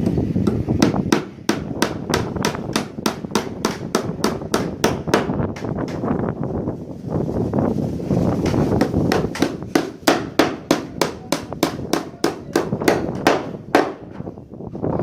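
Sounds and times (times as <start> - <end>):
hammer striking wood: 0.0 - 6.0, 8.4 - 14.2.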